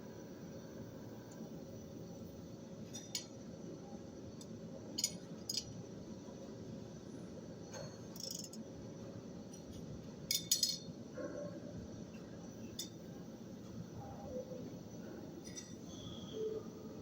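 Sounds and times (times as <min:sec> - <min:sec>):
steady low hum: 0:00.0 - 0:17.0
light metallic clinks: 0:09.6 - 0:10.9, 0:15.4 - 0:16.2.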